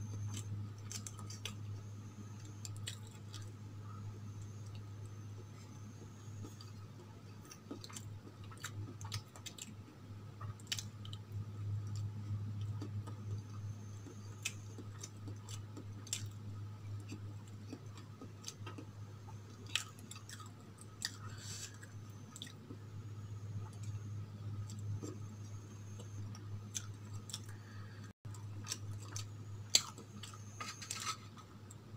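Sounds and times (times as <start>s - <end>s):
steady low hum: 0.0s - 31.9s
close chewing: 7.4s - 9.8s, 11.8s - 18.9s.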